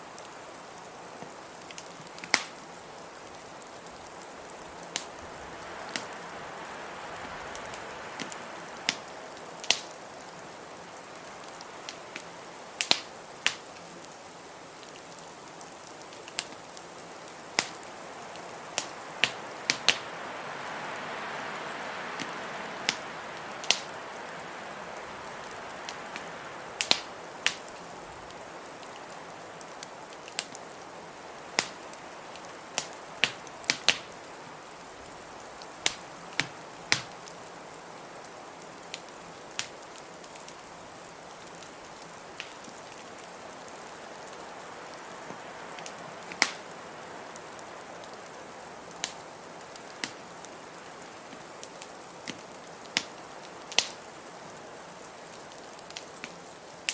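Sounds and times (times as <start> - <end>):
wood fire crackling and popping: 0.1 - 21.1, 21.7 - 56.9
blizzard wind hissing: 2.6 - 13.4, 16.9 - 38.5.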